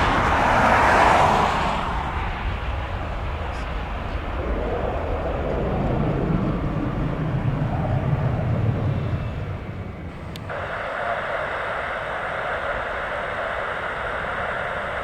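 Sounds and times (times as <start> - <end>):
jet engines rumbling: 0.0 - 15.0
radio static: 10.1 - 15.0
click: 10.3 - 10.8.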